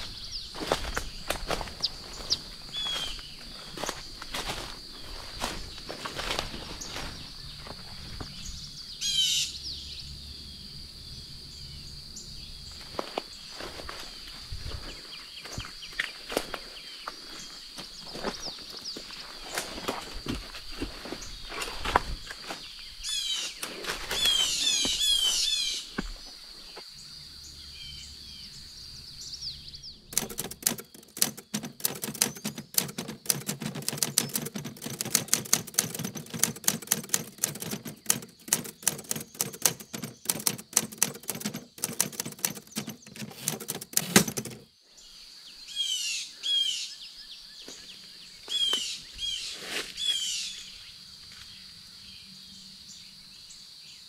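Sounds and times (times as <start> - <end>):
high insect drone: 0.0 - 54.0
songbird chirping: 0.0 - 54.0
dense crackling clicks: 30.1 - 44.6.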